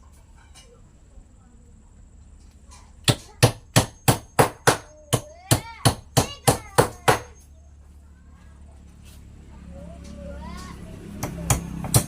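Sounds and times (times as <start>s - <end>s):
hammer striking wood: 3.0s - 7.3s, 11.2s - 12.0s.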